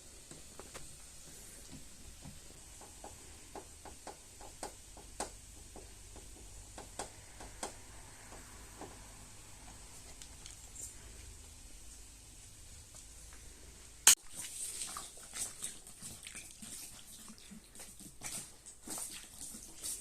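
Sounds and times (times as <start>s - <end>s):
light irregular taps and clicks: 0.2s - 9.0s.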